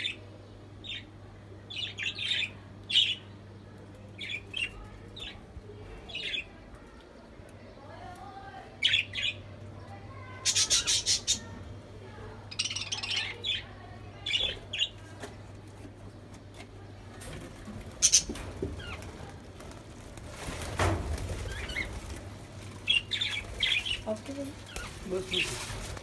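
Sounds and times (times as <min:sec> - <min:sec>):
budgerigars chirping and squawking: 0:10.4 - 0:11.6, 0:12.5 - 0:15.0, 0:18.0 - 0:19.0, 0:22.8 - 0:25.8.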